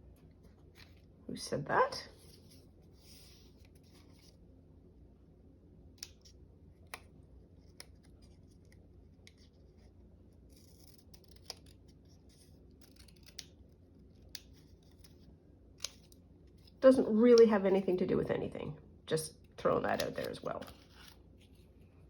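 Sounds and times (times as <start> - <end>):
scissors snipping paper: 10.4 - 15.2, 15.8 - 16.2, 19.8 - 21.2
paper rustling: 19.9 - 21.8.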